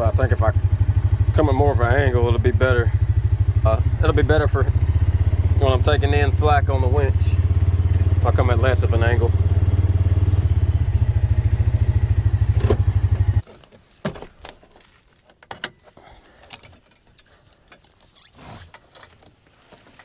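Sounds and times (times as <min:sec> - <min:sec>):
engine running: 0:00.0 - 0:13.4
small clicks and knocks: 0:12.6 - 0:20.0.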